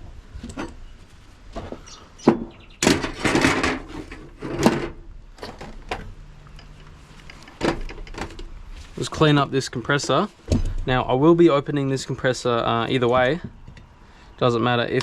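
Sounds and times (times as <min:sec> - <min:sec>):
tools scraping clatter: 0:02.8 - 0:09.1.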